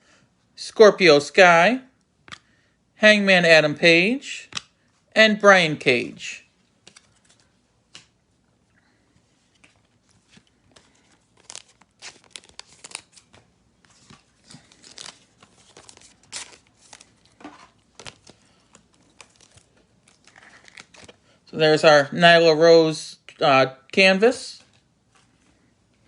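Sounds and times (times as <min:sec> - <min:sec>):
crinkling plastic wrapping: 0:09.5 - 0:21.2.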